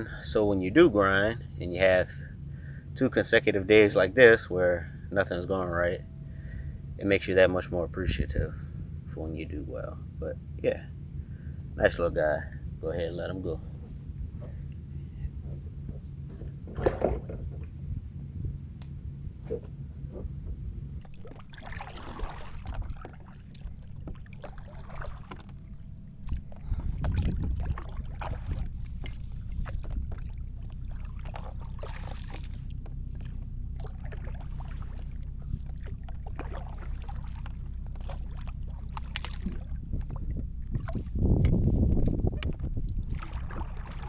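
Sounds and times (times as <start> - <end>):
steady low rumble: 0.0 - 44.0
paddle strokes splashing in water: 13.7 - 44.0.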